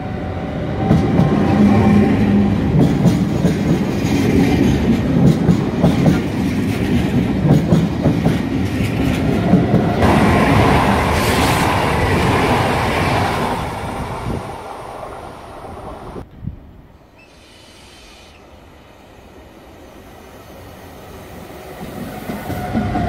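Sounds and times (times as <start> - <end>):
high-speed train rushing past: 0.0 - 23.0
train wheels clacking over rail joints: 2.7 - 12.2.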